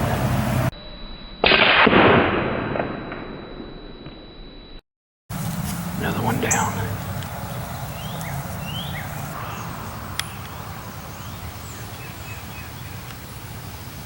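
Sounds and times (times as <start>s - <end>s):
birds chirping: 0.0s - 0.7s, 5.3s - 14.0s.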